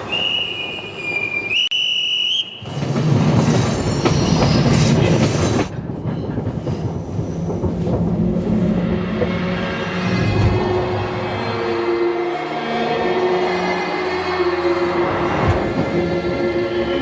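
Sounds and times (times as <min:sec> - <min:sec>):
train rumbling on rails: 0:00.0 - 0:17.0
rail clacks: 0:02.6 - 0:11.0.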